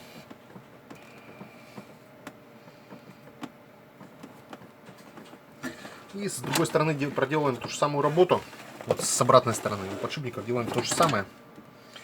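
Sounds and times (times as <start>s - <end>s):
handling clicks and light knocks: 0.2s - 8.6s.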